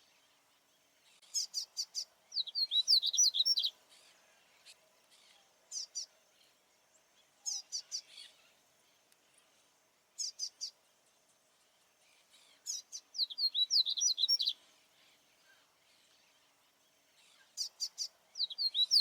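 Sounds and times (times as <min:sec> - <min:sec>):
seedeater bird singing: 0:01.2 - 0:06.2, 0:07.2 - 0:08.6, 0:12.1 - 0:19.0.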